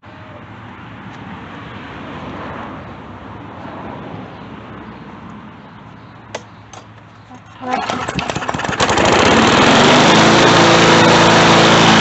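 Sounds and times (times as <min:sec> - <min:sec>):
lawn mower engine running: 0:07.4 - 0:12.0.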